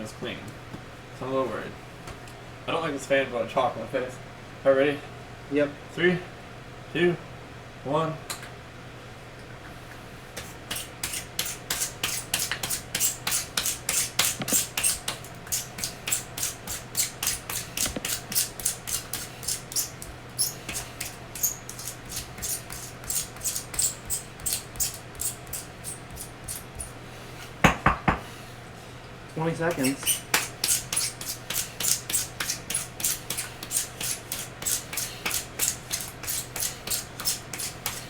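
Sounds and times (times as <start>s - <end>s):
pencil sharpener grinding: 11.1s - 26.9s, 29.6s - 38.0s.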